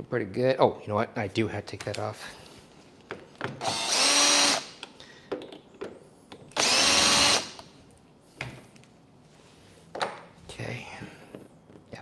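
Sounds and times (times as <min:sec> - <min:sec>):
power drill whining: 0:03.6 - 0:04.7, 0:06.6 - 0:07.6.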